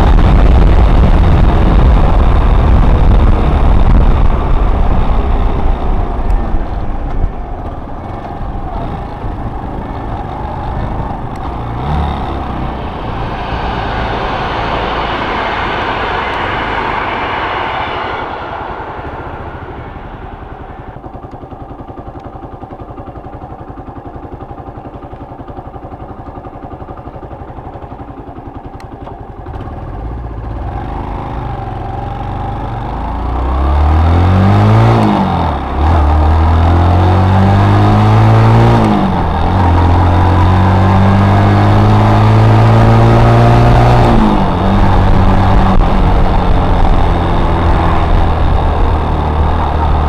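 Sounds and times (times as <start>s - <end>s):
wind noise: 0.0s - 21.9s, 33.5s - 50.0s
motorcycle engine: 0.0s - 50.0s.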